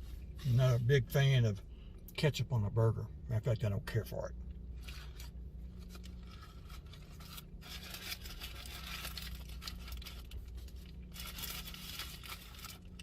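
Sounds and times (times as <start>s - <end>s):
steady low hum: 0.0s - 13.0s
paper wrapper rustling: 4.8s - 13.0s.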